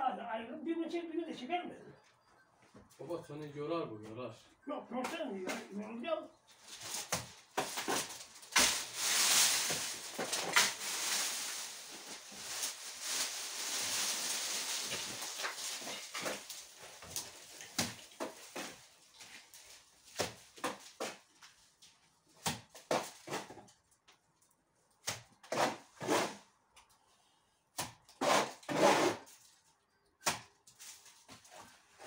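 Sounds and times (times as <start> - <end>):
dry brush rustling and crackling: 6.5 - 20.0
twigs snapping and knocking: 6.7 - 22.7.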